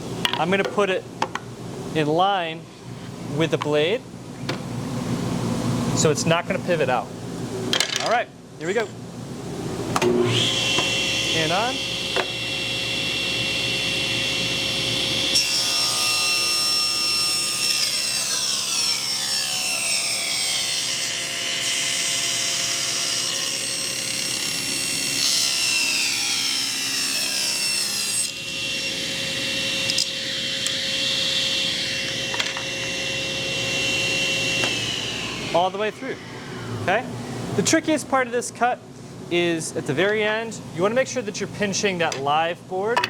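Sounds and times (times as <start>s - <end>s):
table saw cutting a board: 10.0s - 37.1s.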